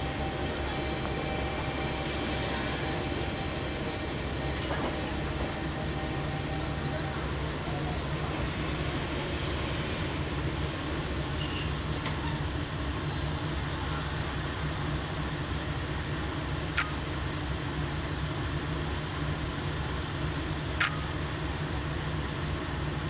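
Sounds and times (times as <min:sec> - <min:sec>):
diesel railcar rumbling: 0:00.0 - 0:23.0
faint metallic squeals: 0:08.4 - 0:12.5.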